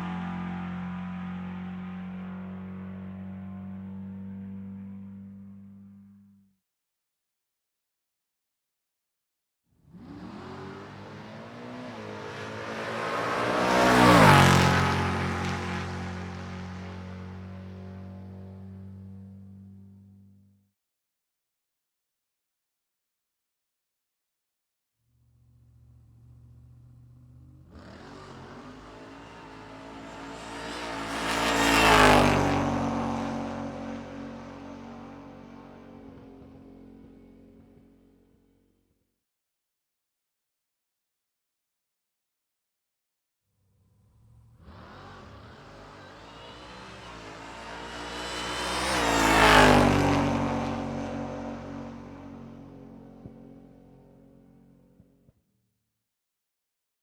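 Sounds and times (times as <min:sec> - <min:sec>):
car driving past: 0:00.0 - 0:06.4, 0:09.9 - 0:20.5, 0:25.4 - 0:37.6, 0:43.9 - 0:54.6.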